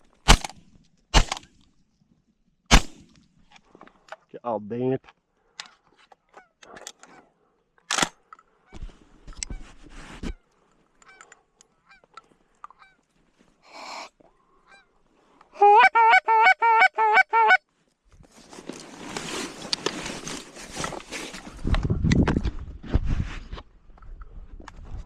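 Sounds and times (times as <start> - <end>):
goose call honks: 15.6 - 17.6
rustling: 17.8 - 21.7.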